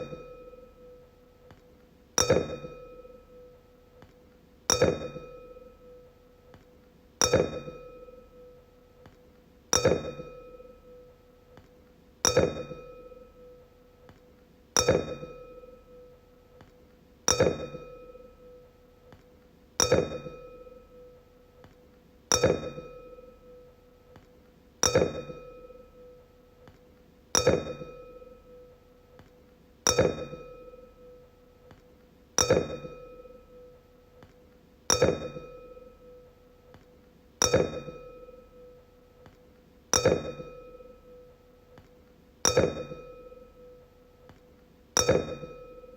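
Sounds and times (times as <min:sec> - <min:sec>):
wine glass ringing when tapped: 0:00.0 - 0:01.0, 0:02.2 - 0:03.5, 0:04.7 - 0:06.1, 0:07.2 - 0:08.6, 0:09.7 - 0:11.1, 0:12.2 - 0:13.6, 0:14.8 - 0:16.2, 0:17.3 - 0:18.6, 0:19.8 - 0:21.2, 0:22.3 - 0:23.7, 0:24.8 - 0:26.2, 0:27.4 - 0:28.7, 0:29.9 - 0:31.3, 0:32.4 - 0:34.3, 0:34.9 - 0:36.3, 0:37.4 - 0:39.3, 0:40.0 - 0:41.4, 0:42.4 - 0:43.9, 0:45.0 - 0:45.9.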